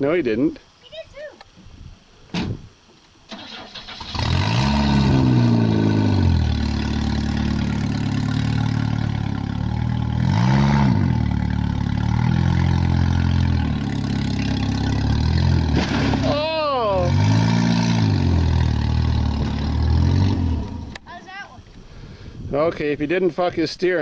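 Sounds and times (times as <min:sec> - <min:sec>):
car engine revving: 0:03.5 - 0:21.0.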